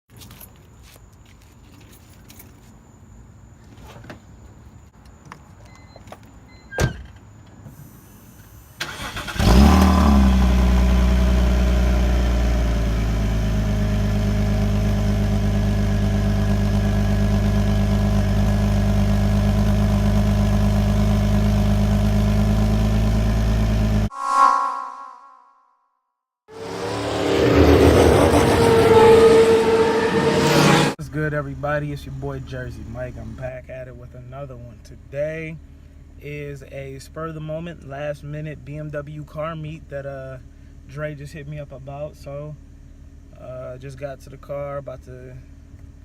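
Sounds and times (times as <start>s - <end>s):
car engine cranking and idling: 8.5s - 24.1s.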